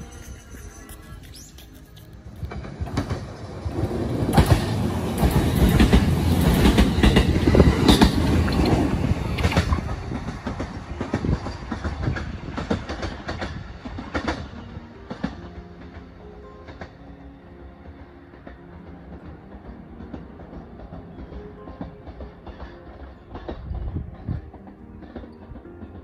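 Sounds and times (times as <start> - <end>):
wheels clicking over rail joints: 0.0 - 16.0
electric train passing: 0.0 - 26.0.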